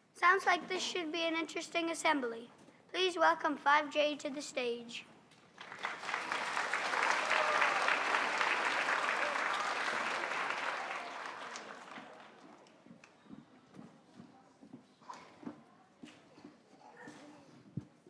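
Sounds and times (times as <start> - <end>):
audience applauding: 5.5 - 13.1.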